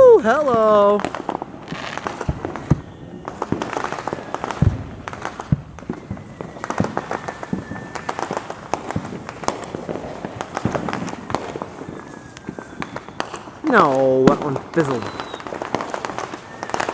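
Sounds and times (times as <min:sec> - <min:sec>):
fireworks bangs and pops: 0:00.0 - 0:16.9
faint thin whistle: 0:05.8 - 0:08.3, 0:11.8 - 0:13.4, 0:15.0 - 0:15.5, 0:16.3 - 0:16.9.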